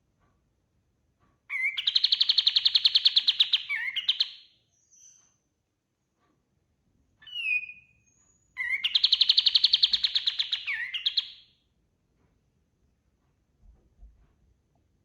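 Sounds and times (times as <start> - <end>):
songbird whistling and trilling: 1.5 - 5.4, 7.2 - 11.5.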